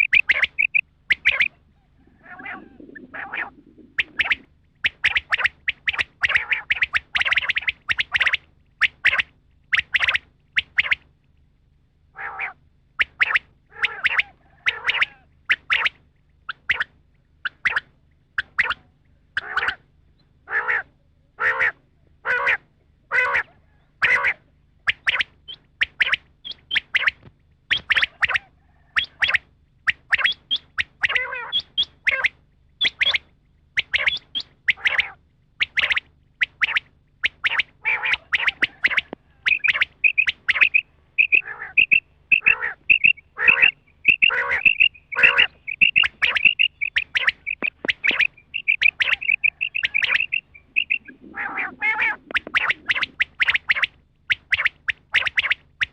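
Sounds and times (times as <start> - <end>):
high thin chirps: 0.0 - 1.5, 38.7 - 51.3
quail calling: 0.0 - 11.1, 12.1 - 55.9.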